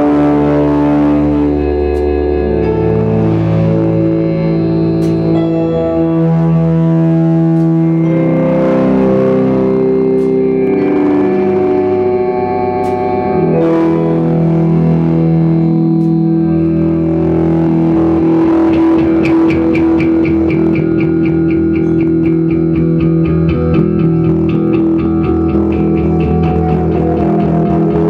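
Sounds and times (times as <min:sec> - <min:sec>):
guitar band music with bass: 0:00.0 - 0:28.0
fast ticking rhythm: 0:18.7 - 0:28.0.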